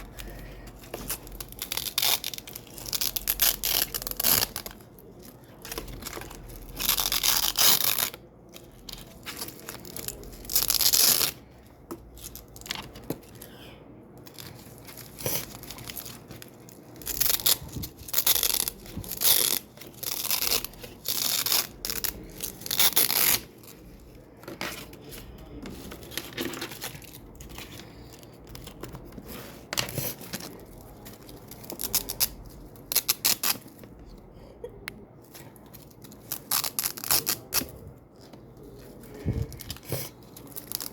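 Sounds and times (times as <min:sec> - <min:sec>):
velcro strips ripping apart: 0:01.5 - 0:04.8, 0:06.5 - 0:08.2, 0:17.0 - 0:23.5, 0:36.2 - 0:37.6.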